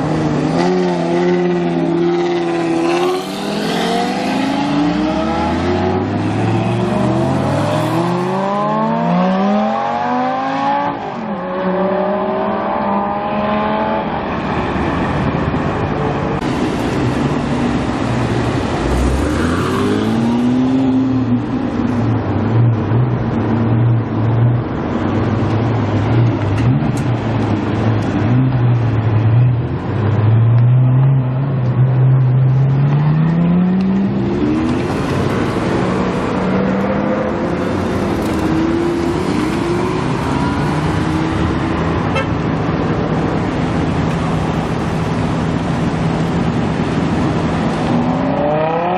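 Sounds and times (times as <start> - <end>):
car engines revving: 0.0 - 48.9.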